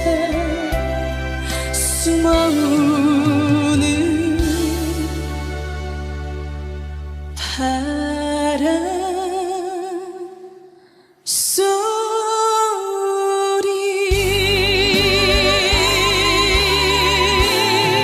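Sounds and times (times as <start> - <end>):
band accompaniment with bass: 0.0 - 7.4, 14.1 - 18.0
woman singing with vibrato: 1.6 - 5.3, 11.3 - 18.0.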